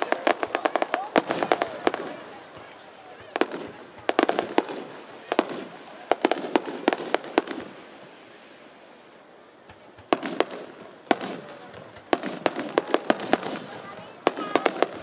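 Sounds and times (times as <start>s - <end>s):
firework shells bursting: 9.7s - 15.0s.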